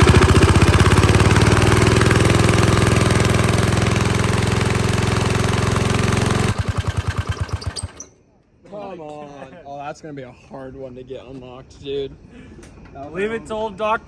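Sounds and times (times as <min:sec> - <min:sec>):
riding lawn mower engine: 0:00.0 - 0:08.1.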